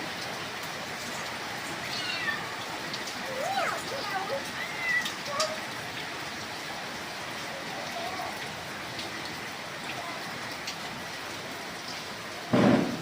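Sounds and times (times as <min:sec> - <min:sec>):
steady rain falling: 0:00.0 - 0:13.0
single raindrops ticking: 0:02.9 - 0:06.1.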